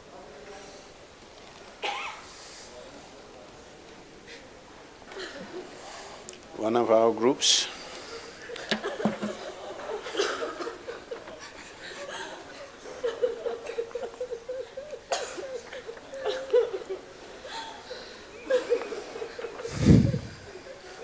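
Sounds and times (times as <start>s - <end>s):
man sobbing: 12.0s - 21.0s.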